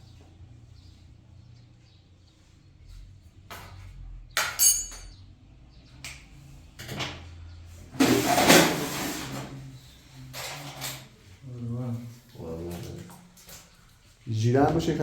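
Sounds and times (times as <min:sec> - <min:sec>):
sharp ringing clink: 0:04.5 - 0:05.2
loud scraping rustle: 0:07.9 - 0:09.8.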